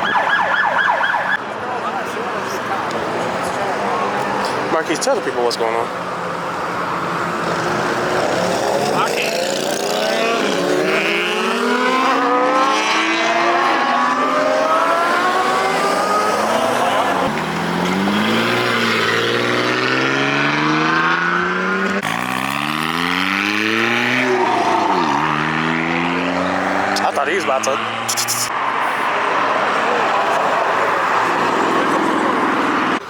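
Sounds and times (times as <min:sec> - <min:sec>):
car engine accelerating: 0:07.1 - 0:28.5.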